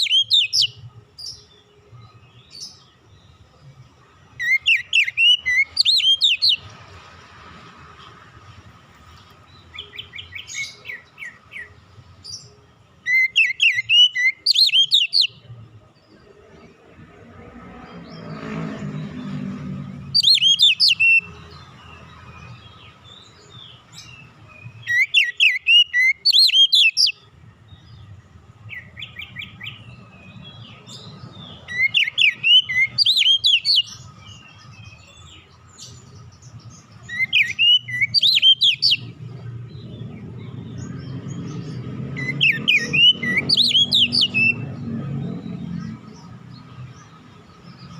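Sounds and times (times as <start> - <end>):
bird singing whistled phrases: 0.0 - 0.8, 4.4 - 6.6, 13.1 - 15.4, 20.1 - 21.3, 24.1 - 27.2, 31.7 - 34.1, 37.0 - 39.2, 42.2 - 44.6
soft bird twittering: 0.0 - 3.7, 4.4 - 6.8, 9.1 - 47.9.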